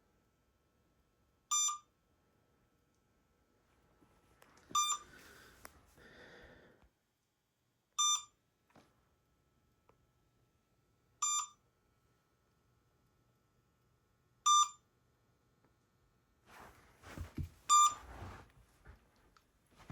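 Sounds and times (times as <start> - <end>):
short electronic beeps: 1.5 - 1.8, 4.8 - 5.0, 8.0 - 8.3, 11.2 - 11.6, 17.7 - 18.0
faint handling rustle: 16.5 - 19.9.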